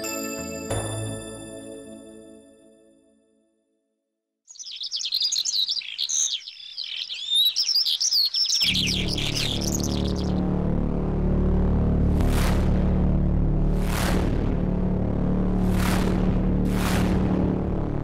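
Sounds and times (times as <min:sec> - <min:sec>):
music: 0:00.0 - 0:03.9, 0:08.6 - 0:18.0
small birds chirping: 0:04.5 - 0:10.4.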